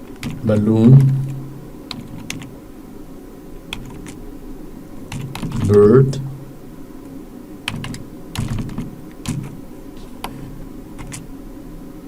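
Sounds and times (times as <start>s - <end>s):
keyboard key clicks: 5.1s - 5.8s, 7.7s - 9.6s.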